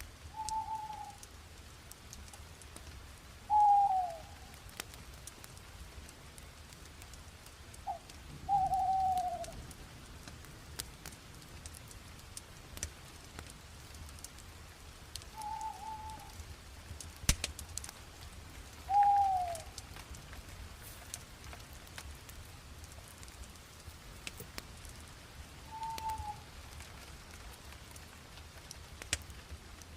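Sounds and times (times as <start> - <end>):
fire crackling and popping: 0.0 - 29.9
bird whistled calls: 0.4 - 1.2, 3.5 - 4.3, 7.9 - 9.5, 15.4 - 16.3, 18.9 - 19.7, 25.7 - 26.4.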